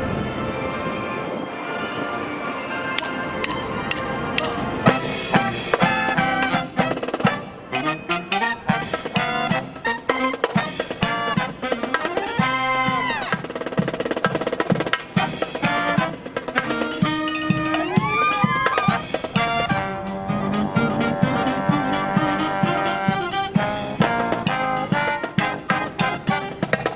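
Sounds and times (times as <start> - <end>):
brass band playing: 0.0 - 26.9
marching drum beat: 4.9 - 7.5, 8.4 - 26.9.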